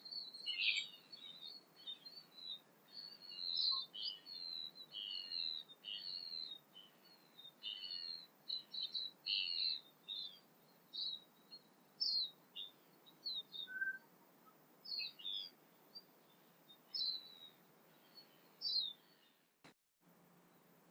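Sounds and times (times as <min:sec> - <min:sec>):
bird lower whistled note: 0:13.6 - 0:14.0.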